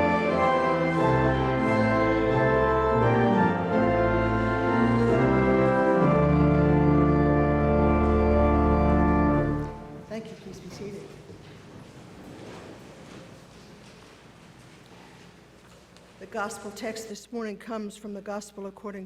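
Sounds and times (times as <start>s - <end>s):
church organ playing hymn chords: 0.0s - 10.1s.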